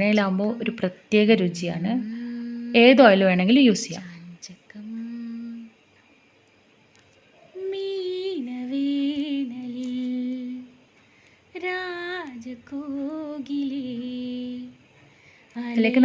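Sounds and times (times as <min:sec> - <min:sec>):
woman humming: 0:01.9 - 0:05.7.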